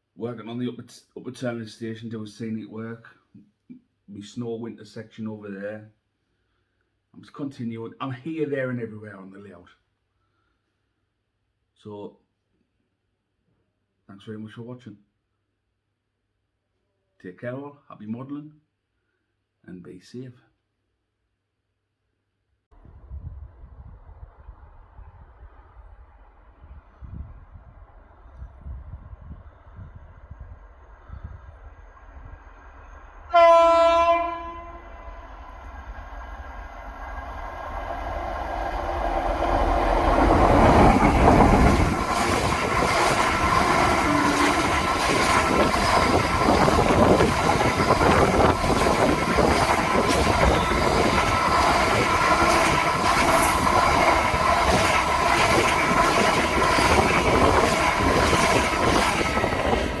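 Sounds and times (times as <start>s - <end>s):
train horn blast: 33.3s - 35.2s
train wheels clattering: 36.0s - 60.0s.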